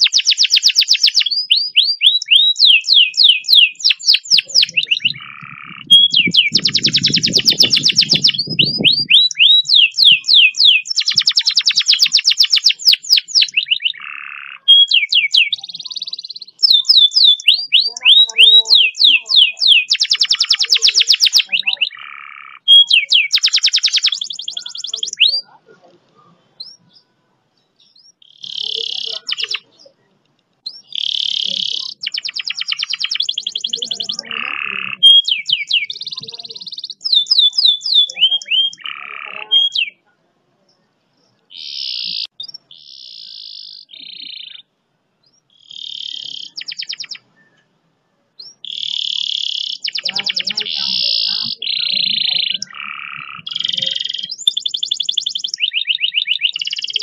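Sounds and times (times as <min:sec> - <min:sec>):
canary singing trills: 0:00.0 - 0:47.8, 0:48.4 - 0:57.0.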